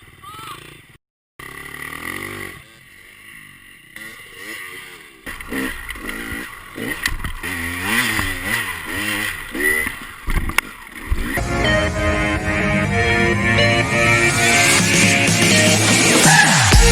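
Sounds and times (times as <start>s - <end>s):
dirt bike engine revving: 0.6s - 16.9s.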